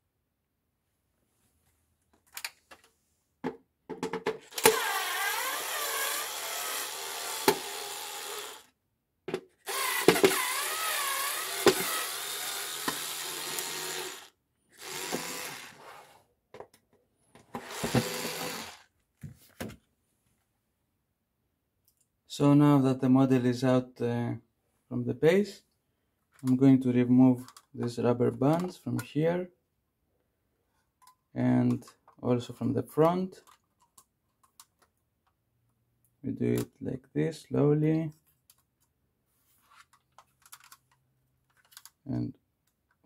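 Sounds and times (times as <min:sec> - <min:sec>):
electric screwdriver motor whine: 0:04.5 - 0:08.7, 0:09.7 - 0:15.8, 0:17.6 - 0:18.8.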